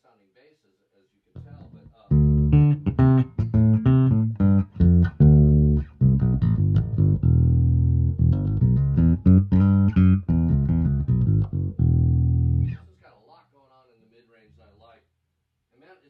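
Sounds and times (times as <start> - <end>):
electric bass plucked notes: 1.4 - 12.8.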